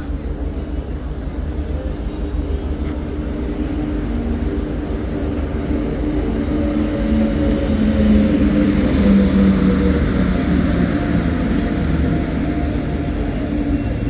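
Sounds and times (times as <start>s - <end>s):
held train tones: 0.0s - 14.0s
train rumbling: 0.0s - 14.0s.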